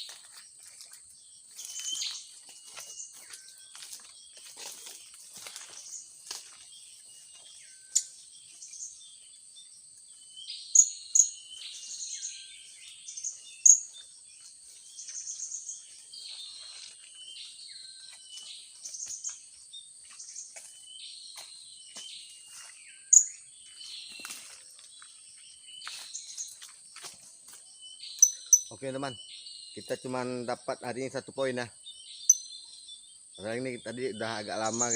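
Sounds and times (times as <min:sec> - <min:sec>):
insects buzzing: 0:00.0 - 0:34.9.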